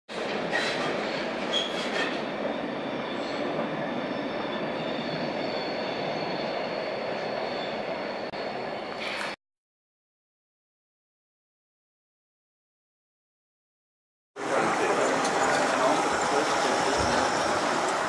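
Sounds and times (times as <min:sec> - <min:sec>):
train rolling on rails: 0:00.1 - 0:09.4, 0:14.4 - 0:18.0
high wheel squeals: 0:00.5 - 0:09.4, 0:14.4 - 0:18.0.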